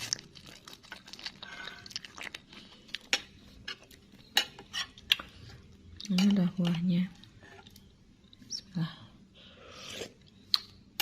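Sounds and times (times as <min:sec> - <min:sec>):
person chewing noodles: 0:00.0 - 0:06.1.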